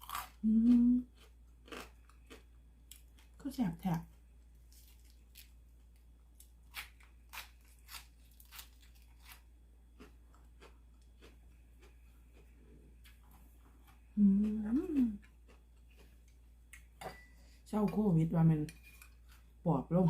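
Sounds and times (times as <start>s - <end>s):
person chewing crunchy food: 0.0s - 3.3s, 6.7s - 16.4s
low steady hum: 0.0s - 20.0s.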